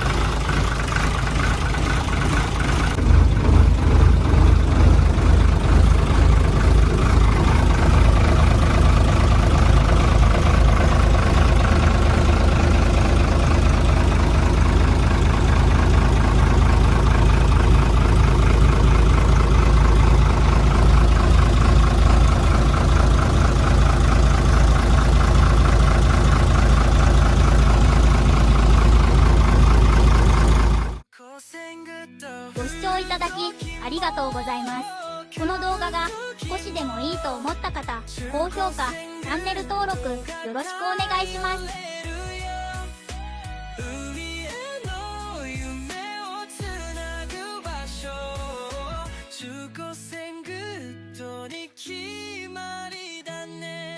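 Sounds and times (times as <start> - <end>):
boat engine droning: 0.0 - 31.0.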